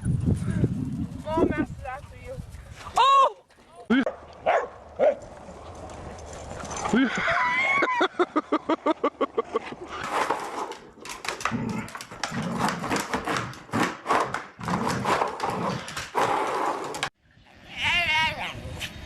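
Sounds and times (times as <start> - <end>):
rough dog noises: 4.0 - 7.0, 11.4 - 17.1.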